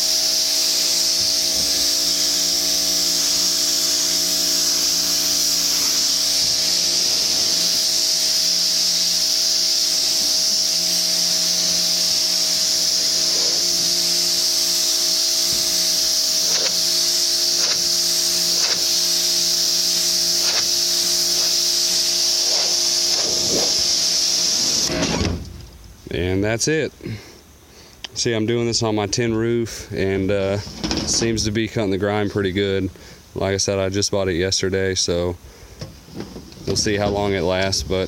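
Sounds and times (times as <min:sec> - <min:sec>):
pressure washer spraying tin roof: 0:00.0 - 0:25.5
electric motor and pump hum: 0:00.0 - 0:25.9.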